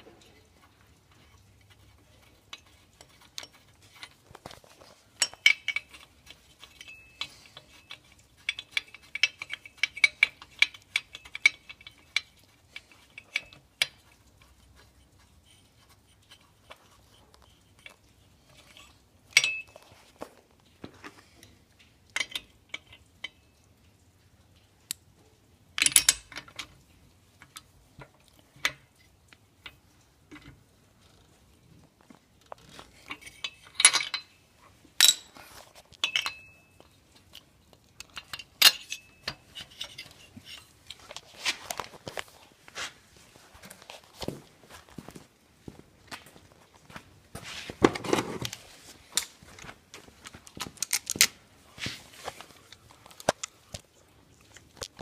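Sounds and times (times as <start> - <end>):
metal tools clinking: 1.2 - 15.6, 17.8 - 20.1, 32.7 - 37.3, 38.0 - 42.4.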